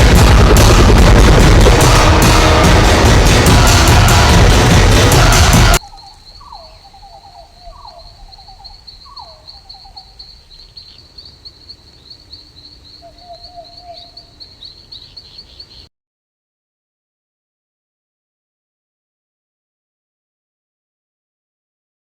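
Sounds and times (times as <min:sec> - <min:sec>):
loud music: 0:00.0 - 0:05.8
pulsing insect trill: 0:00.2 - 0:15.9.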